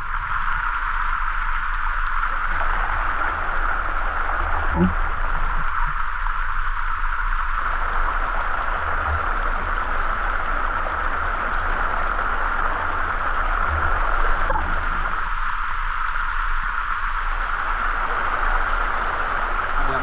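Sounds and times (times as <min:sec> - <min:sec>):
waterfall rushing: 0:07.5 - 0:20.0.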